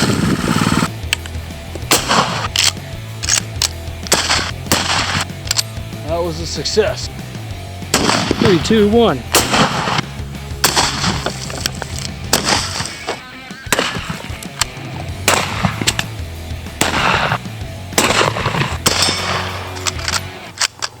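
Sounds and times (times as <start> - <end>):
background music with bass: 0.0 - 20.5
gunshots with echo: 1.9 - 2.5, 4.1 - 5.3, 7.9 - 11.3, 12.3 - 14.4, 15.2 - 16.1, 16.8 - 19.7.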